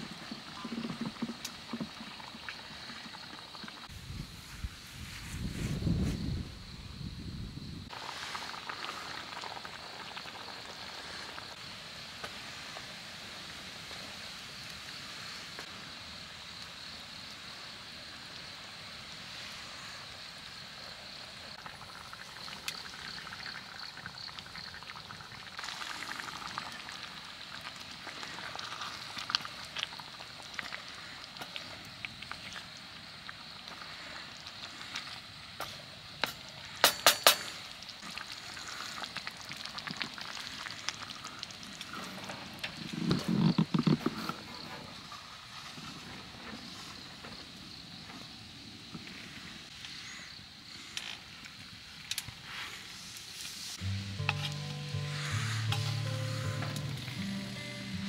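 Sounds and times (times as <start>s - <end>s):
food sizzling over campfire: 0.0s - 58.0s
fire pops and crackles: 7.9s - 15.0s, 21.5s - 44.4s.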